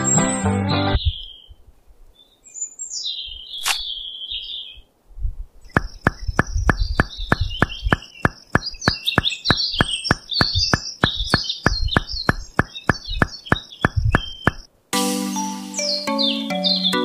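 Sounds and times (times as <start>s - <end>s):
birds chirping: 1.0s - 4.9s, 5.6s - 14.7s
low thuds: 5.7s - 14.7s
steady clicking: 5.7s - 14.7s.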